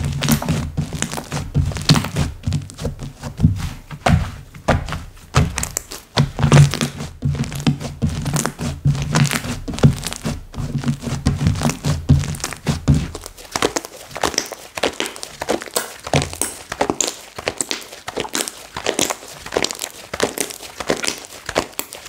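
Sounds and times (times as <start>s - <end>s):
soft low thuds: 0.0s - 13.4s.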